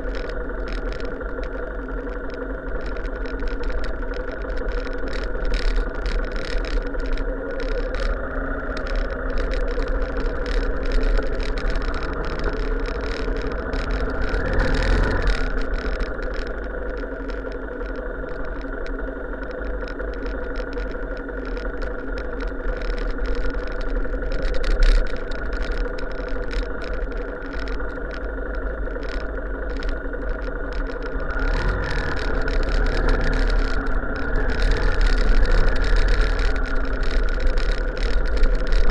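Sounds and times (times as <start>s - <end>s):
low rumble: 0.0s - 38.9s
vehicle engine running: 0.0s - 38.9s.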